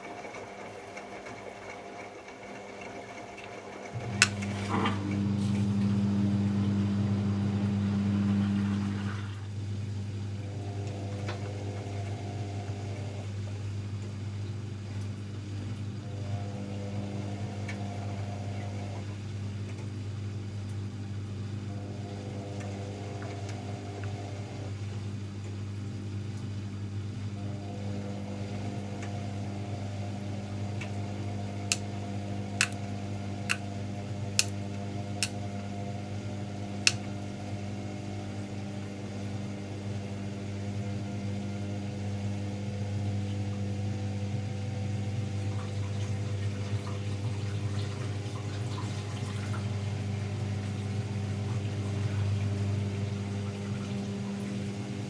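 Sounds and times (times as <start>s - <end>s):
washing machine humming: 0.0s - 55.0s
sharp clicks: 32.6s - 32.8s.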